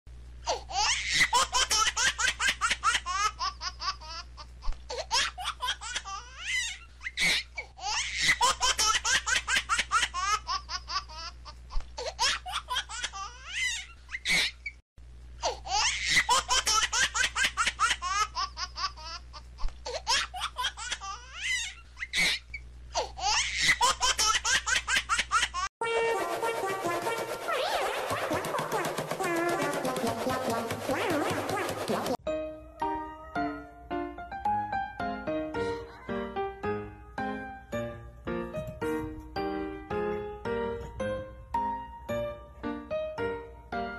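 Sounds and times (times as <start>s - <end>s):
music with brass: 25.8s - 32.2s.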